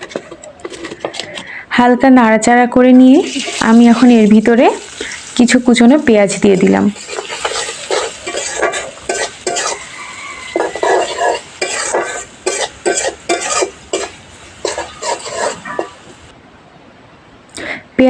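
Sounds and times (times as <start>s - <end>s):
spatula scraping a pan: 0.0s - 1.5s, 3.3s - 4.2s, 6.2s - 16.3s
onions sizzling in a pan: 2.9s - 16.3s.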